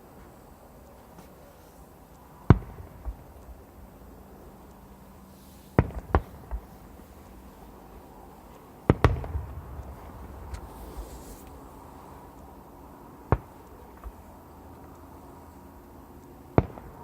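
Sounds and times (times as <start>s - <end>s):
rolling rumble: 2.6s - 14.8s
fireworks bangs: 5.8s - 7.8s, 8.8s - 12.4s.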